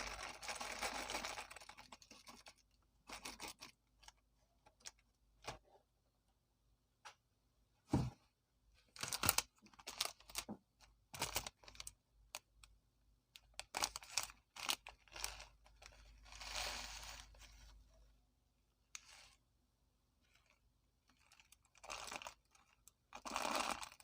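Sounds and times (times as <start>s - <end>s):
plastic snack packet crinkling: 0.0s - 5.0s, 11.1s - 12.5s, 13.4s - 17.4s, 20.4s - 24.0s.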